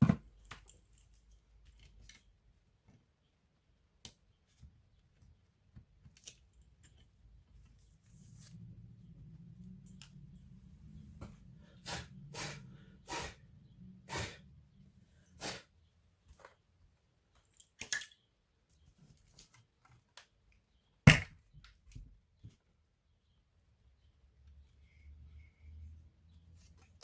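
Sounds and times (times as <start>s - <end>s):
faint low hum: 0.1s - 17.6s.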